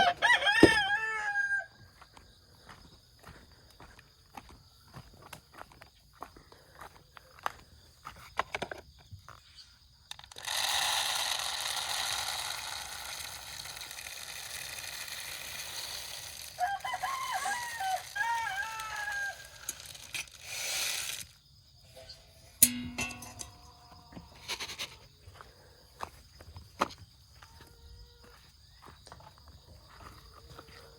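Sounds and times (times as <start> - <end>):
rooster crowing: 0.0 - 1.8, 16.5 - 19.8.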